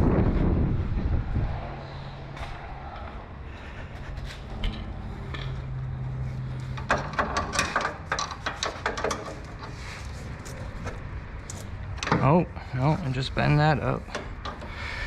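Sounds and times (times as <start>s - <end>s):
low hum: 0.0s - 15.0s
hand tools clicking and knocking: 4.5s - 15.0s.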